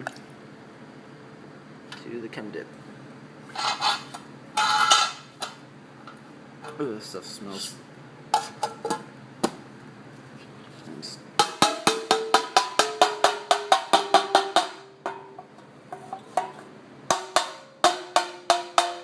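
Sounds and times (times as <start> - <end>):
metal lid tapping on can: 11.4 - 15.6, 16.4 - 19.0.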